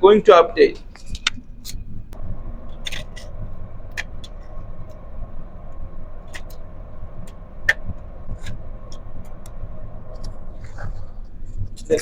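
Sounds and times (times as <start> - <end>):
faint steady hum: 0.0 - 12.0
low machinery rumble: 0.0 - 12.0.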